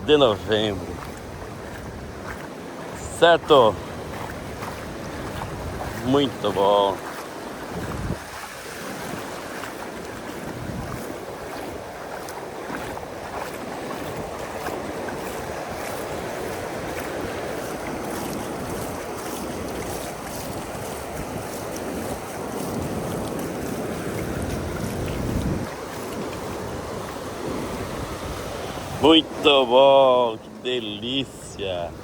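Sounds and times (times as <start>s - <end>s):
ocean surf washing ashore: 0.0s - 32.0s
wind buffeting microphone: 0.0s - 32.0s.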